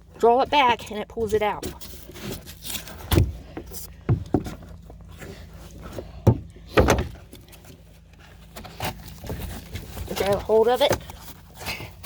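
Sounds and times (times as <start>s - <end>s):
knocks and thumps: 3.0s - 5.0s, 5.9s - 7.7s.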